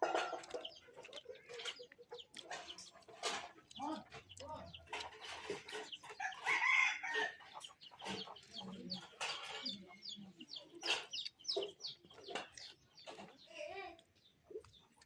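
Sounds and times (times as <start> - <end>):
chickens clucking: 0.0 - 15.0
rooster crowing: 6.2 - 7.4.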